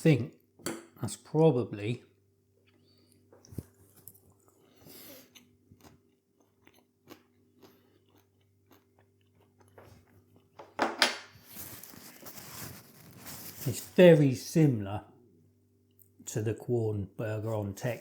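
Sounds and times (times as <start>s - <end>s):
person chewing: 2.6s - 10.6s.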